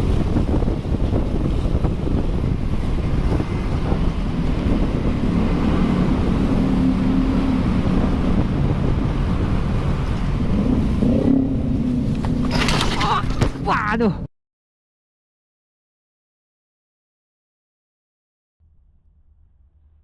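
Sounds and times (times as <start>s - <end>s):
wind rumble: 0.0s - 14.3s.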